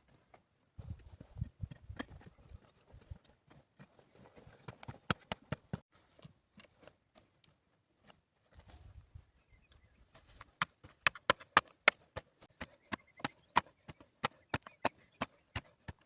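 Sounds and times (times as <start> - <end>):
sharp knocks and clicks: 10.4 - 16.0.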